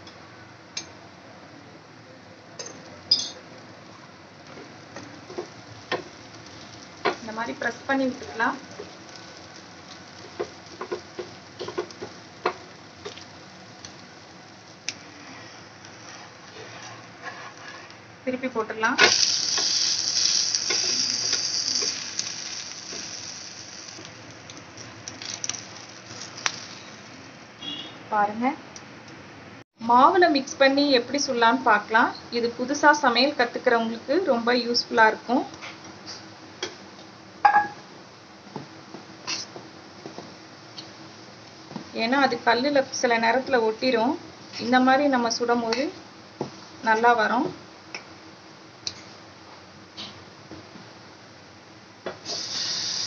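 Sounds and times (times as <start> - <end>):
batter sizzling on hot pan: 4.5 - 18.0, 18.8 - 27.8, 52.1 - 53.0.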